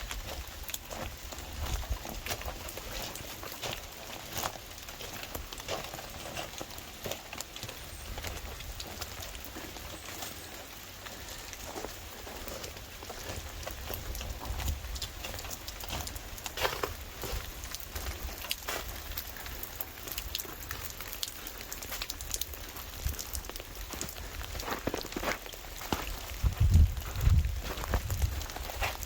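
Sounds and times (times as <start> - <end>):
rain falling: 0.0 - 29.0.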